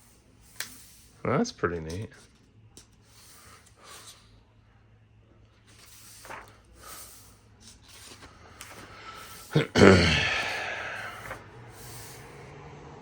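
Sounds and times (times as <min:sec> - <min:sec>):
book pages turning: 0:05.5 - 0:09.7, 0:10.4 - 0:12.3.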